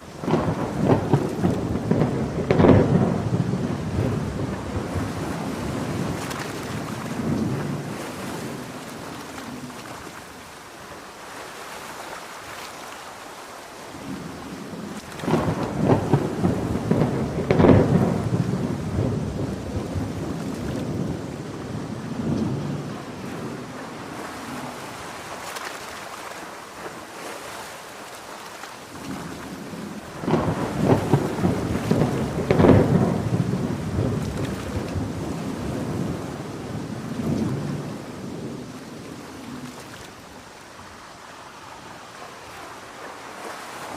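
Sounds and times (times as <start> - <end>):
thunder rumbling: 0.0 - 10.3, 14.0 - 25.4, 28.9 - 40.6
heavy rain: 0.0 - 43.9.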